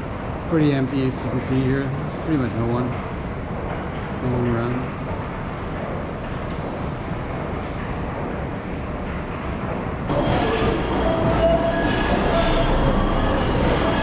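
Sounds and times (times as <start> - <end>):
train rumble: 0.0 - 14.0
train wheels squealing: 10.1 - 14.0.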